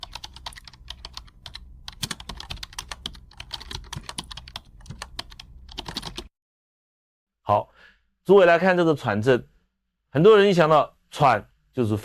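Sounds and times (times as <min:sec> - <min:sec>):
faint low hum: 0:00.0 - 0:06.2
rapid keyboard clicking: 0:00.0 - 0:06.3.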